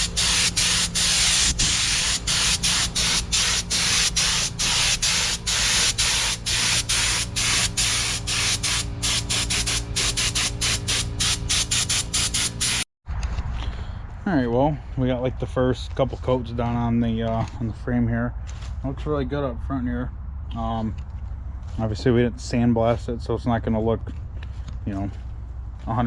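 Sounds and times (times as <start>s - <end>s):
paint spray gun hissing: 0.0s - 12.8s.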